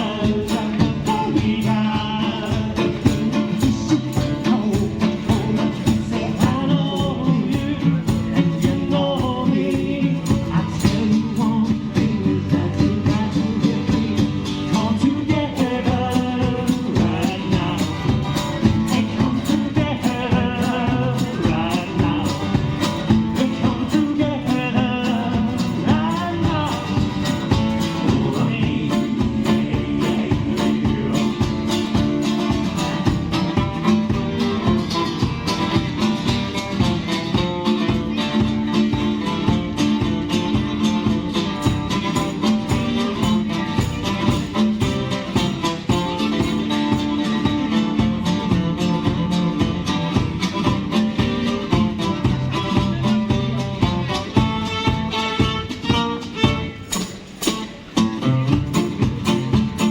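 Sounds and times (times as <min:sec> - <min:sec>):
person singing: 0:00.0 - 0:33.2
live country band playing: 0:00.0 - 0:59.9.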